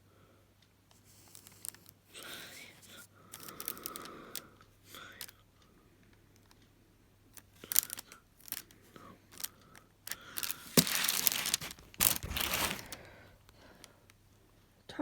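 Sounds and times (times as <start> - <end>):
plastic and paper crinkling: 7.6 - 9.5, 10.1 - 13.9.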